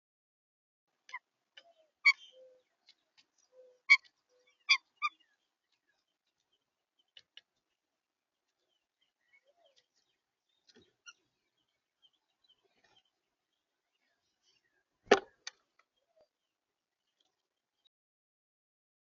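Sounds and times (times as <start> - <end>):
birds clicking at a feeder: 5.6 - 7.6.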